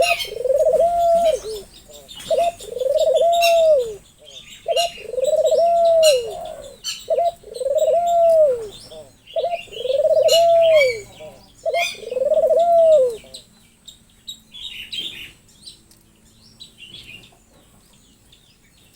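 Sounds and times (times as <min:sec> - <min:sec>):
bird hooting: 0:00.0 - 0:13.4.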